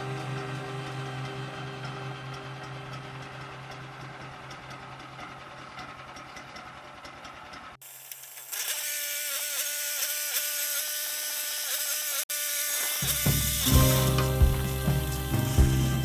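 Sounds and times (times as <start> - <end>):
whine with wavering pitch: 0.0 - 4.6
small gasoline engine ticking: 0.0 - 8.8, 13.0 - 16.0.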